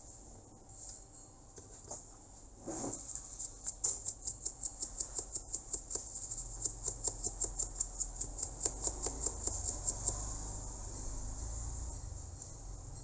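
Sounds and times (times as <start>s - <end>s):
fast light clicks: 3.8s - 10.4s.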